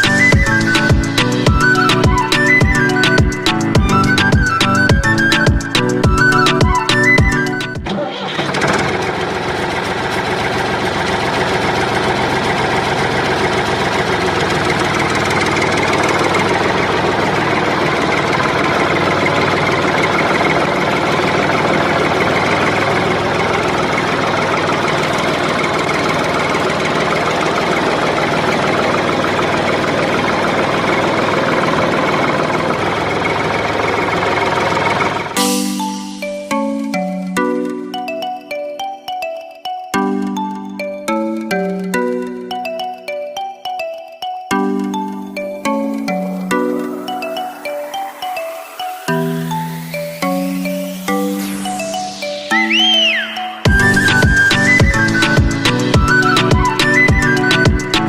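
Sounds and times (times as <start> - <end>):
engine running: 0.0 - 35.9.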